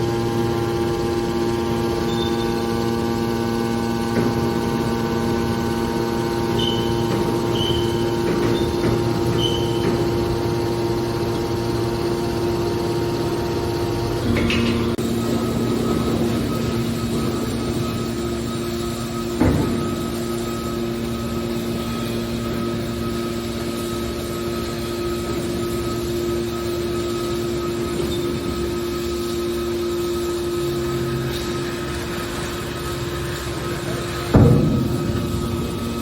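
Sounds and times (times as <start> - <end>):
hydraulic baler humming: 0.0 - 36.0
short high squeaks: 2.1 - 2.7, 6.4 - 10.4.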